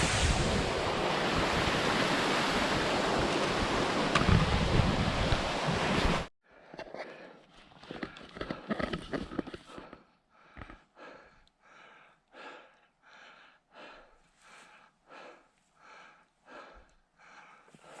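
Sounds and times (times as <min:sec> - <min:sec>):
person breathing hard: 0:09.6 - 0:18.0.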